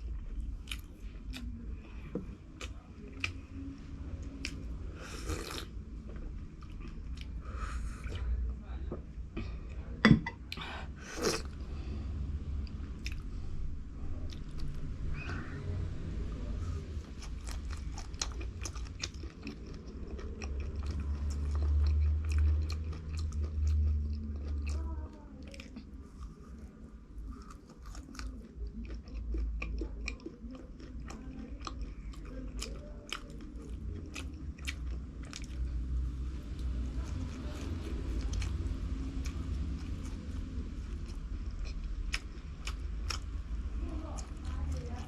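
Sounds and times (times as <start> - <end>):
chewing crunchy food: 0.0 - 7.4, 16.7 - 45.0
deep low rumble: 0.0 - 45.0.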